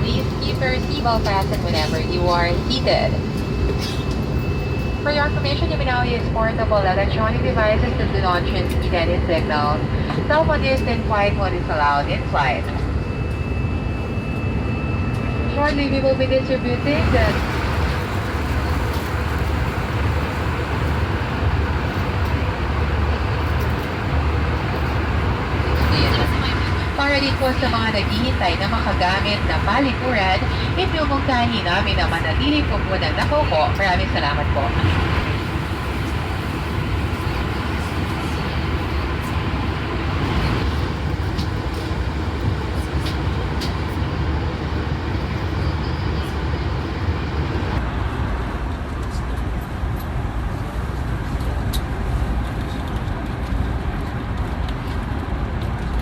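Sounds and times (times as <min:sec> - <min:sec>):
airliner engine rumble: 0:00.0 - 0:56.0.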